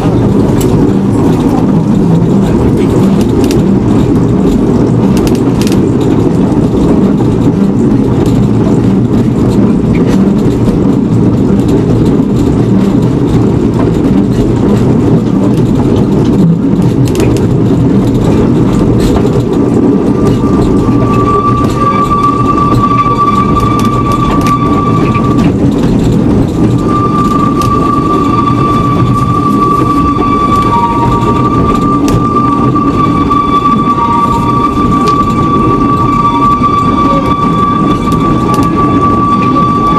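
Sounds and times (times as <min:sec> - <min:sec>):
train rumbling: 0:00.0 - 0:39.9
train whistle: 0:18.5 - 0:39.9.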